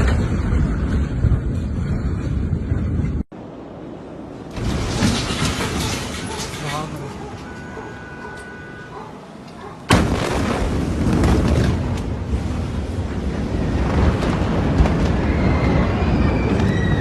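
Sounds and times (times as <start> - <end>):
heavy rumble with cracks: 0.0 - 3.4, 4.3 - 7.0, 9.9 - 17.0
explosion bang: 9.9 - 12.3.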